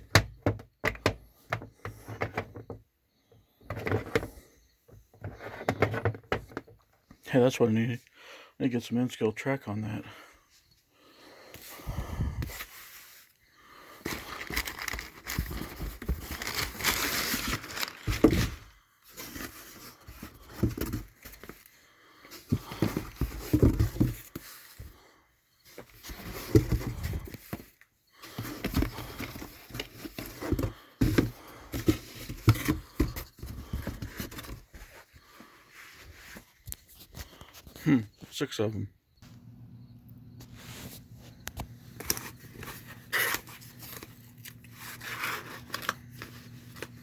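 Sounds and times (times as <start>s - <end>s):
packaging crinkling and rustling: 12.5s - 25.1s, 40.8s - 47.0s.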